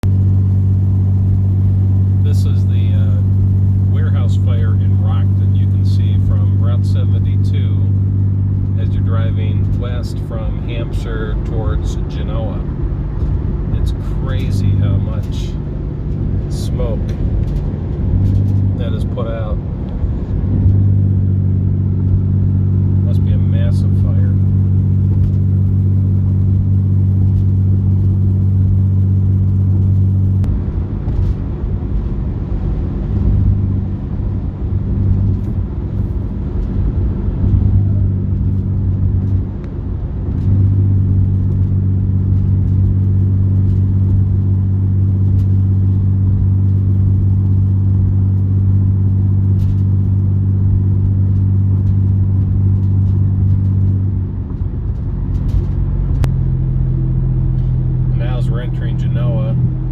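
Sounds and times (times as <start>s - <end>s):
car engine and road drone: 0.0s - 59.9s.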